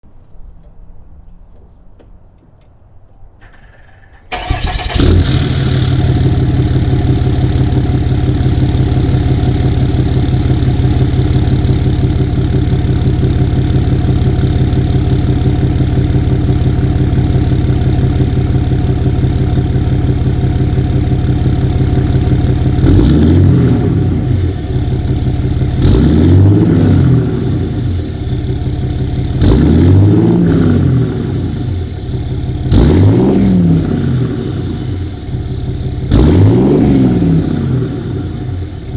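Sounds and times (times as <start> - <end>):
diesel engine starting and revving: 3.4 - 38.9.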